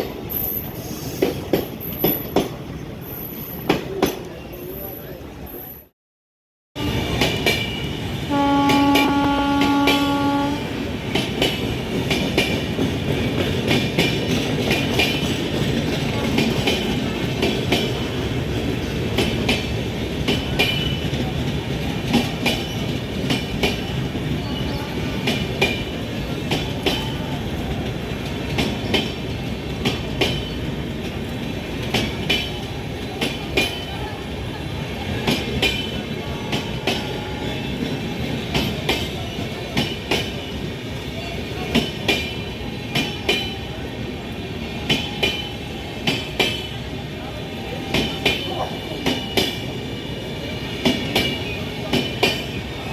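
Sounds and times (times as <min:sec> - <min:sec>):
locomotive horn blast: 0:08.2 - 0:10.8
train wheels clattering over rail joints: 0:11.1 - 0:24.4, 0:25.2 - 0:33.8, 0:37.8 - 0:43.6.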